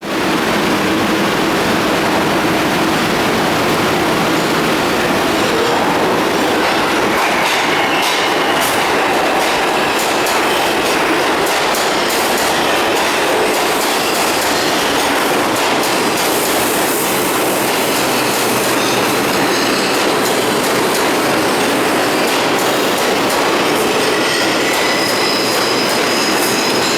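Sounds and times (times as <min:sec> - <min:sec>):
subway train rumbling: 0:00.0 - 0:26.9
high-pitched wheel squeal: 0:24.0 - 0:26.9.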